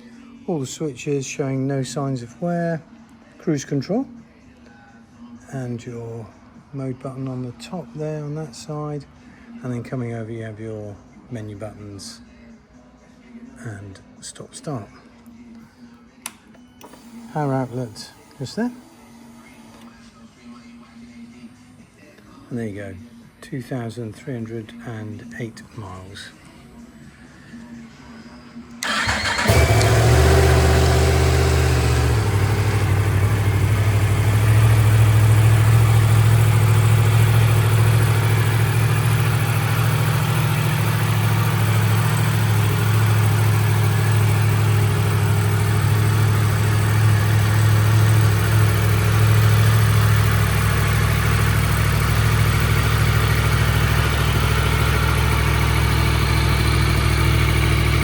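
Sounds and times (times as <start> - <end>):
motorcycle engine starting and idling: 16.3 - 18.6, 28.8 - 58.0.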